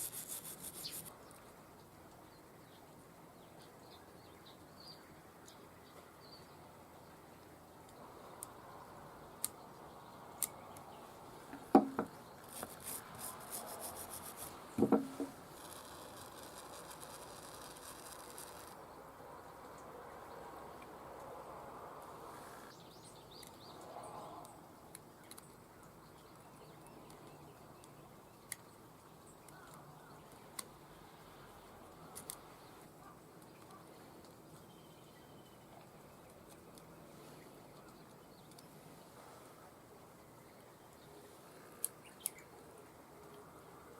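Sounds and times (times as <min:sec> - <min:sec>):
rubbing and scraping: 0:00.0 - 0:01.1, 0:11.8 - 0:18.8
faint bird chirps: 0:00.0 - 0:01.4, 0:32.7 - 0:35.7
light clicks of small parts: 0:23.3 - 0:25.6, 0:29.4 - 0:30.8, 0:32.0 - 0:34.7, 0:37.7 - 0:38.7.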